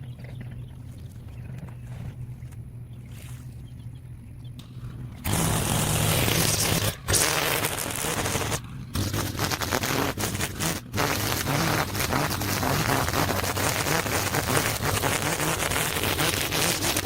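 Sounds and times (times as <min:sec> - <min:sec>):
petrol engine drone: 0:00.0 - 0:17.0.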